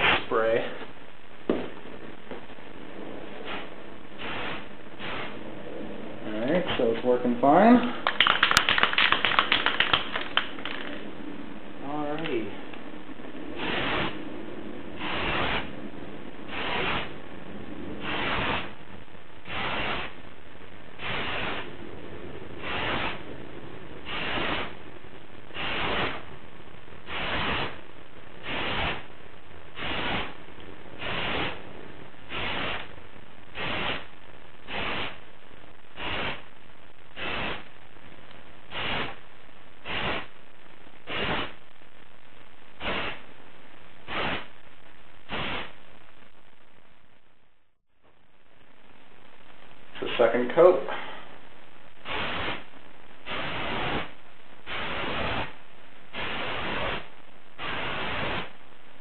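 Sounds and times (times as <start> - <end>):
steady background hiss: 0.0 - 59.0
spray paint can hissing bursts: 3.4 - 5.4, 8.2 - 10.9, 13.6 - 14.2, 15.0 - 15.7, 16.5 - 17.1, 18.0 - 18.7, 19.4 - 20.2, 21.0 - 21.7, 22.6 - 23.2, 24.0 - 24.8, 25.5 - 26.2, 27.0 - 27.8, 28.4 - 29.1, 29.8 - 30.4, 31.0 - 31.6, 32.3 - 32.9, 33.5 - 34.1, 34.7 - 35.2, 36.0 - 36.4, 37.2 - 37.6, 38.7 - 39.2, 39.8 - 40.3, 41.0 - 41.6, 42.8 - 43.2, 44.1 - 44.5, 45.3 - 45.7, 52.0 - 52.6, 53.2 - 54.1, 54.7 - 55.5, 56.1 - 58.5.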